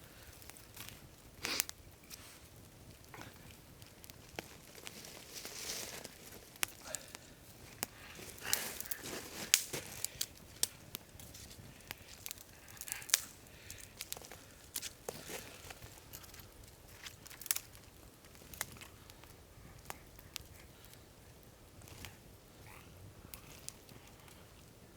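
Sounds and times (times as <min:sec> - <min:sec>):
campfire crackling: 0:00.0 - 0:24.9
fire snaps and pops: 0:00.1 - 0:24.8
soft rustling crunches: 0:03.2 - 0:19.2.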